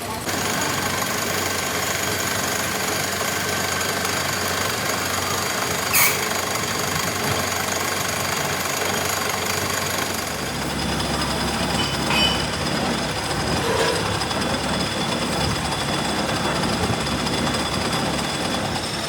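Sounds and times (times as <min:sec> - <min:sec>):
workshop machinery running: 0:00.0 - 0:19.0
high squeal: 0:05.8 - 0:06.4.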